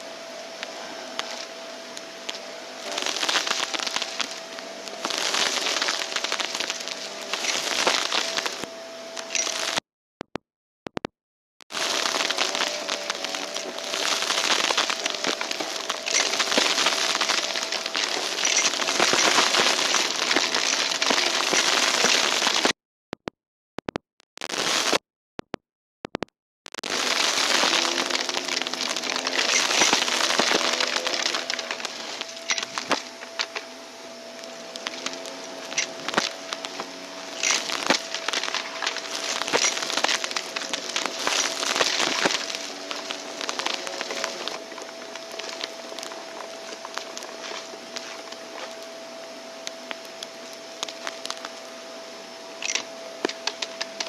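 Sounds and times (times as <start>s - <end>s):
vacuum cleaner sucking debris: 1.1s - 8.7s, 11.7s - 22.7s, 26.8s - 48.9s.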